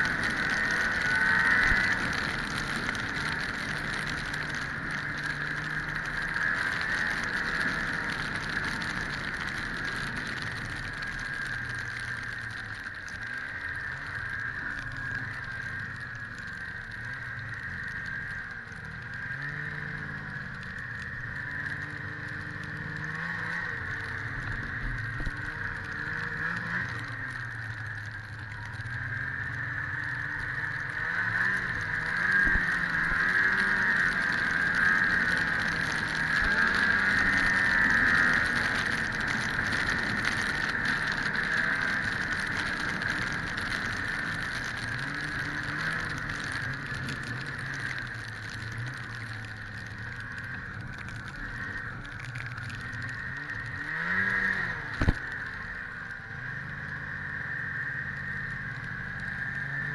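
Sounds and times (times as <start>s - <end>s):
snowmobile engine revving: 0.2s - 2.0s, 25.0s - 27.0s, 29.4s - 42.5s, 53.4s - 55.1s.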